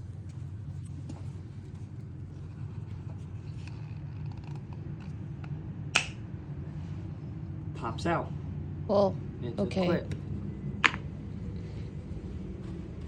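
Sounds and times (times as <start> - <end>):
steady low hum: 0.0 - 13.0
filter element snapping off: 5.9 - 6.2.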